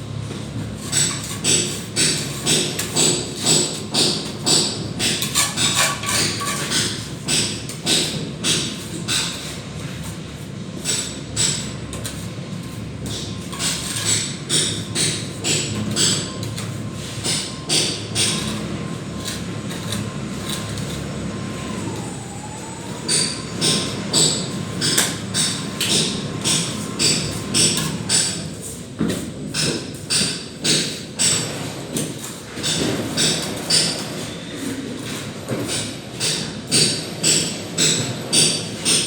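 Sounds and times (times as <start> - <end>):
trowel scraping plaster: 0.3 - 21.8.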